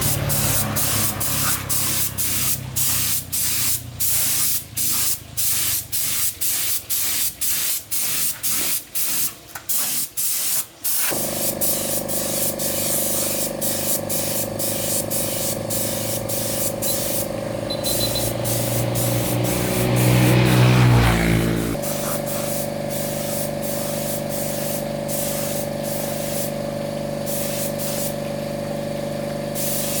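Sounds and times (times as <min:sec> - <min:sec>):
spray hissing: 0:00.0 - 0:26.6, 0:27.3 - 0:28.2, 0:29.6 - 0:30.0
motor hum: 0:11.1 - 0:21.8.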